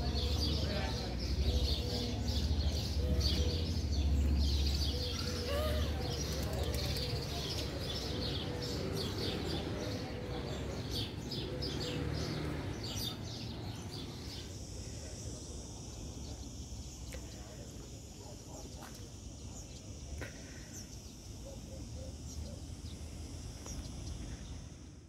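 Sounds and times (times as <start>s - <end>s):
small birds chirping: 0.0s - 25.0s
faint wavering murmur: 12.6s - 25.0s.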